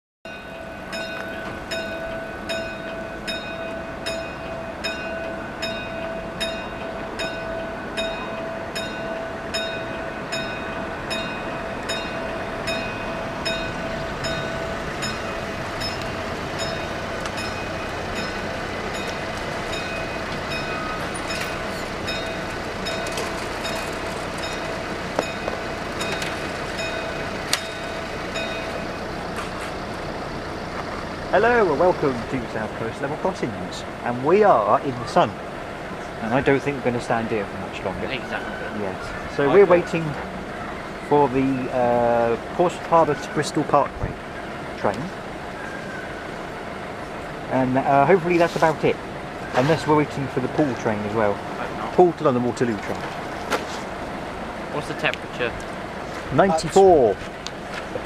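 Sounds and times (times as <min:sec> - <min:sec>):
train rumbling: 0:00.3 - 0:58.0
train whine: 0:00.3 - 0:58.0
train wheels clicking over rail joints: 0:00.5 - 0:33.4.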